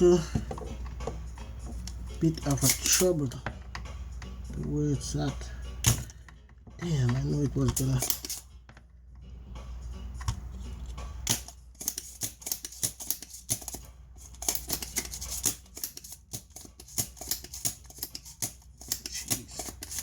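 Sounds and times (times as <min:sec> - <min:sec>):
hand tools clicking and scraping: 0:00.0 - 0:05.2, 0:05.8 - 0:08.8, 0:10.2 - 0:20.0.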